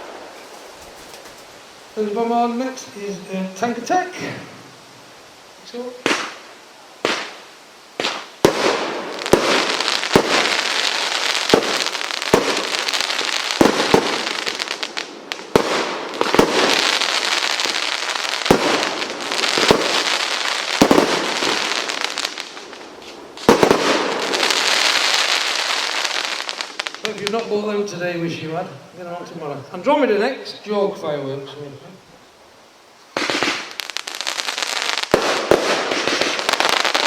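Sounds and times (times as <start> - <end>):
firework crackling: 0.0 - 4.8, 5.6 - 27.9, 33.0 - 37.0
firework bangs: 6.0 - 27.5, 33.1 - 37.0.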